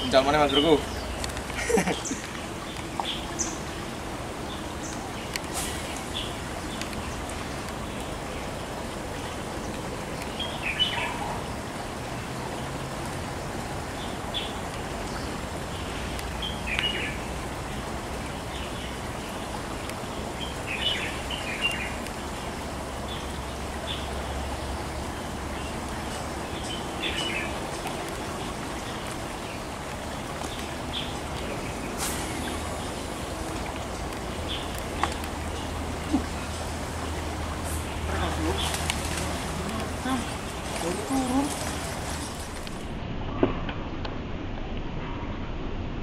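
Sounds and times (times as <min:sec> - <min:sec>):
small birds chirping: 0:00.0 - 0:03.8, 0:14.0 - 0:42.6
outdoor background hiss: 0:00.0 - 0:46.0.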